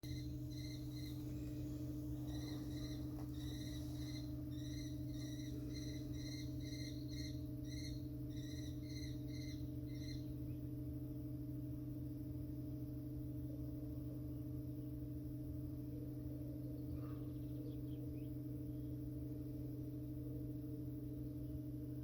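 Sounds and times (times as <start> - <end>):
bird chirping: 0.0 - 10.6.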